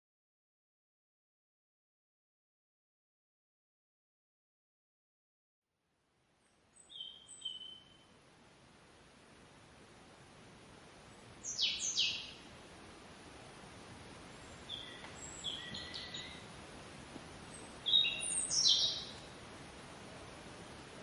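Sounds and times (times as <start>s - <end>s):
steady background hiss: 5.8s - 21.0s
birds chirping: 6.7s - 8.0s, 11.0s - 12.4s, 14.3s - 16.5s, 17.4s - 19.4s.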